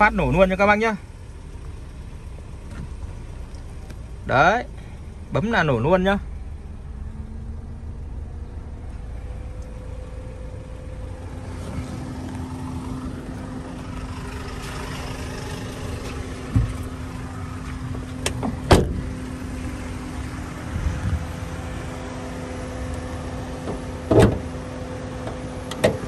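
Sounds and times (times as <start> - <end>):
car engine idling: 0.0 - 26.0
car door opening and shutting: 16.0 - 17.2, 17.9 - 19.4, 23.5 - 26.0.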